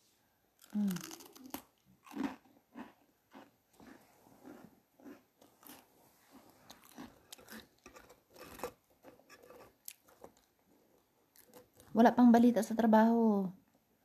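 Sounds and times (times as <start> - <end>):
person chewing crisp food: 0.6 - 11.9.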